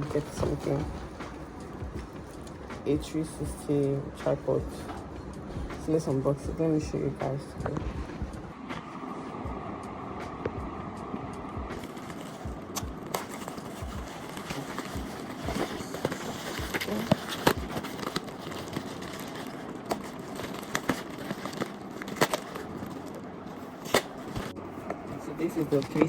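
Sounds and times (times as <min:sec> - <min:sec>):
box and wrapping rustling: 0:00.0 - 0:04.9, 0:11.8 - 0:26.0
clicks and knocks of packaging: 0:11.8 - 0:26.0.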